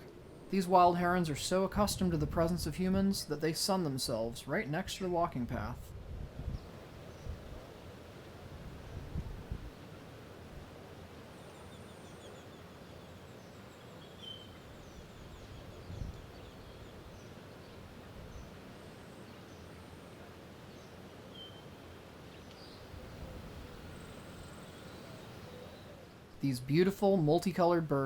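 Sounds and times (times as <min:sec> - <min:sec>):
low rumbling hiss: 0:00.0 - 0:28.0
faint bird chirps: 0:11.4 - 0:26.1.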